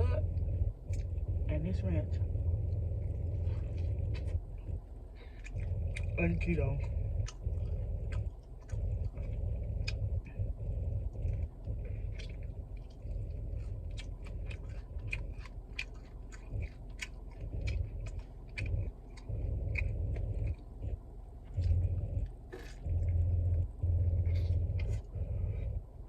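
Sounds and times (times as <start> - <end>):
low hum: 0.0 - 26.0
chewing mouth clicks and smacks: 0.9 - 1.2, 3.4 - 23.2.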